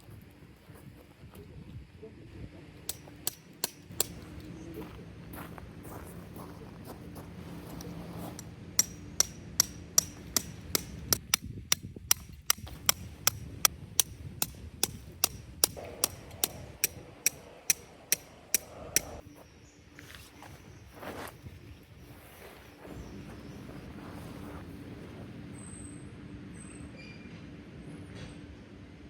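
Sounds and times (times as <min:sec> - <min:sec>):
hammer striking metal stake: 0:02.9 - 0:04.3, 0:08.4 - 0:19.2.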